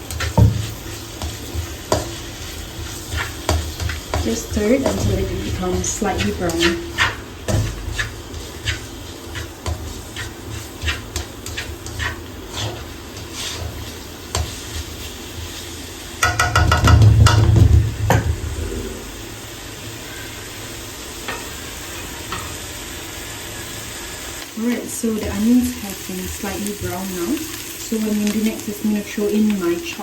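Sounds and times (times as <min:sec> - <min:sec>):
spatula stirring and tapping pan: 0:00.0 - 0:18.4
onions sizzling in oil: 0:00.0 - 0:30.0.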